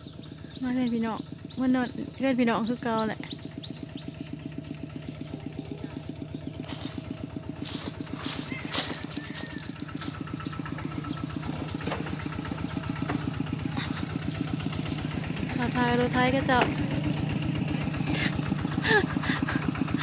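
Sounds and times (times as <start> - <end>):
diesel engine putt-putt: 0.0 - 20.0
short clatter: 7.6 - 10.6.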